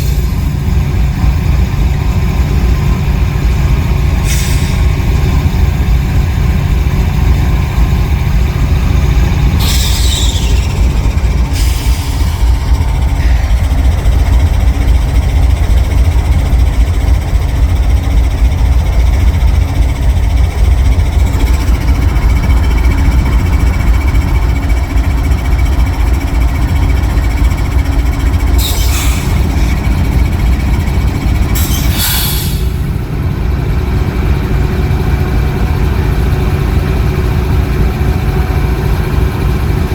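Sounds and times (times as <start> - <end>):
freight train rumbling: 0.0 - 39.9
high-pitched train squeals: 9.4 - 17.7, 19.2 - 33.0.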